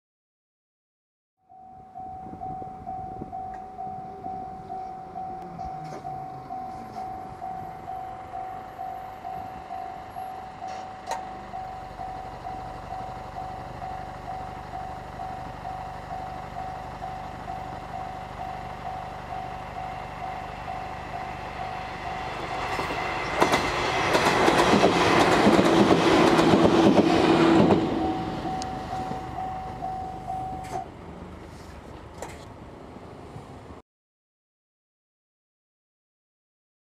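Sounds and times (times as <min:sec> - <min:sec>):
level crossing bell ringing: 0:01.5 - 0:22.3, 0:27.9 - 0:30.8
electric train passing: 0:01.5 - 0:33.8.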